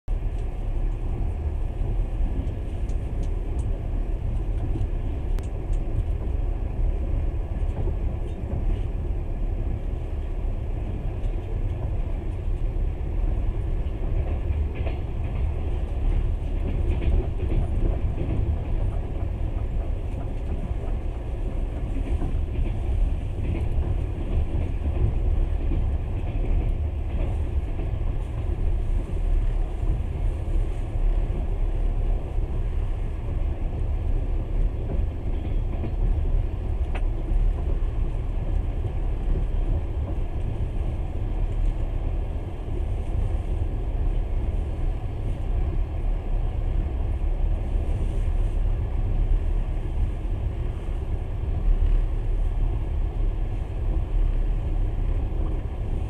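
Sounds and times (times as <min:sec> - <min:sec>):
train wheels rumbling on rails: 0:00.1 - 0:56.0
faint irregular clicks: 0:01.8 - 0:06.4, 0:36.8 - 0:37.8.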